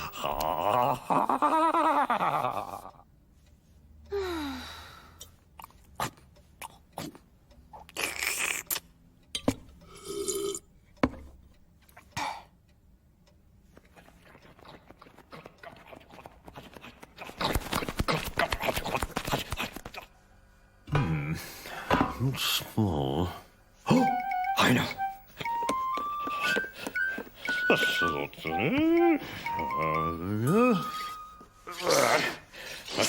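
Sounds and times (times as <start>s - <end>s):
wavering voice-like grunt: 0.0s - 3.0s, 20.9s - 23.3s, 23.9s - 25.0s, 29.9s - 33.0s.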